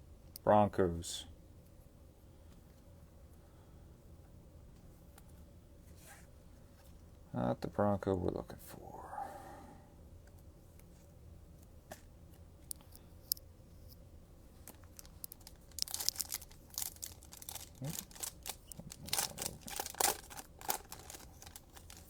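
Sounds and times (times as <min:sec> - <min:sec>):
wrapper tearing and crinkling: 0:14.7 - 0:22.0.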